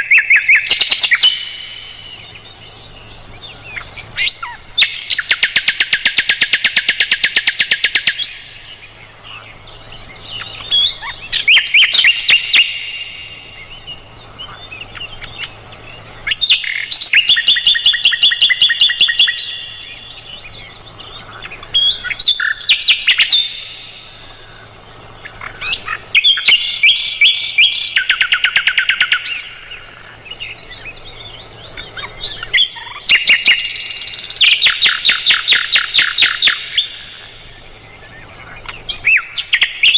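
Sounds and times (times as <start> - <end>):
flycatcher singing high trills: 0.0 - 39.9.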